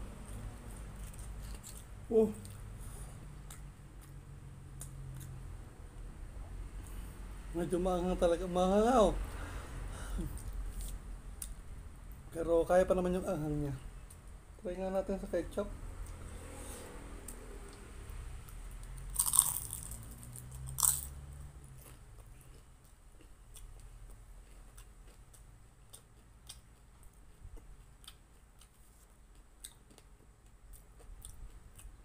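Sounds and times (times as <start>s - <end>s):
chewing with small crackles: 0.2s - 5.6s, 16.0s - 32.0s
crunching bites of spring roll: 18.9s - 27.0s.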